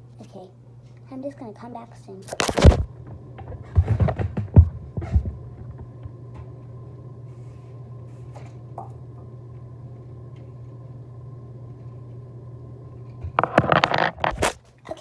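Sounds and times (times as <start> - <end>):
room hum: 0.0 - 15.0.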